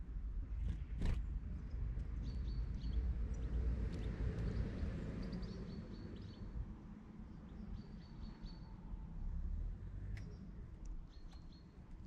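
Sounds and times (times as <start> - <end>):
small birds chirping: 1.6 - 6.5, 10.2 - 11.8.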